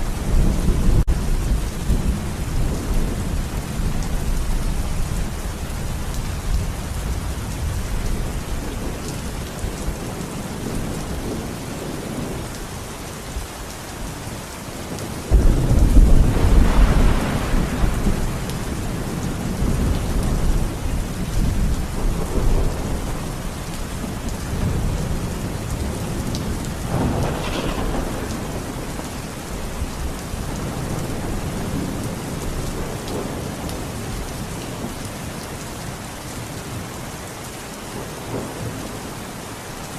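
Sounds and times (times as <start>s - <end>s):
steady rain: 0.0s - 39.9s
rolling thunder: 14.9s - 34.2s
loud thunderclap: 15.3s - 18.8s, 25.8s - 33.4s.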